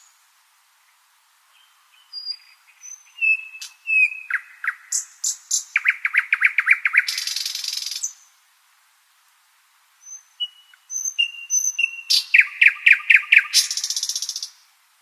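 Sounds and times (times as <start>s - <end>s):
nightingale singing: 0.9s - 8.4s, 10.0s - 14.7s.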